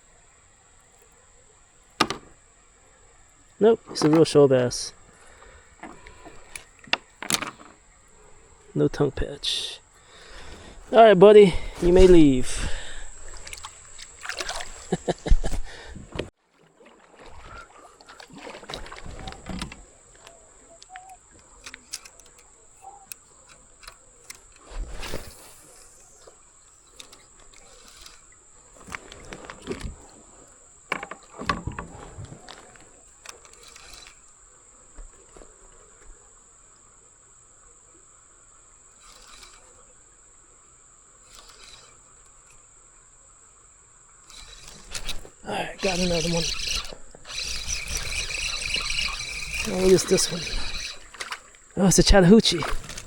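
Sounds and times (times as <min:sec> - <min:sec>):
faint high whine: 0:00.0 - 0:16.3, 0:17.1 - 0:53.0
light water splashes: 0:00.0 - 0:53.0
knocks on kayak: 0:02.0 - 0:02.3
rustling: 0:44.2 - 0:51.8.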